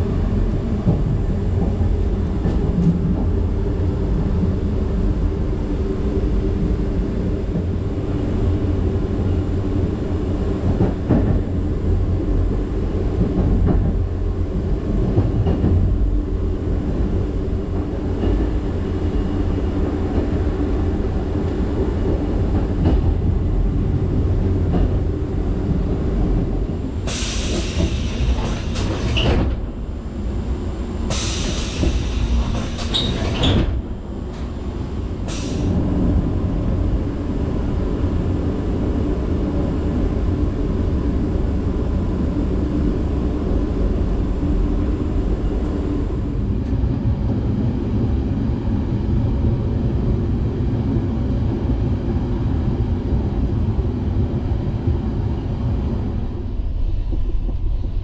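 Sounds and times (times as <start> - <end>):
train wheels rumbling on track: 0.0 - 58.0.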